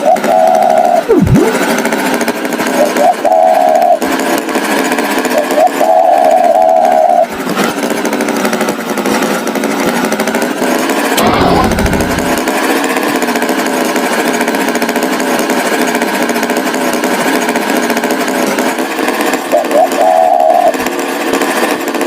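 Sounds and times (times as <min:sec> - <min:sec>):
small motor rattling: 0:00.0 - 0:22.0
low thump: 0:11.2 - 0:12.5.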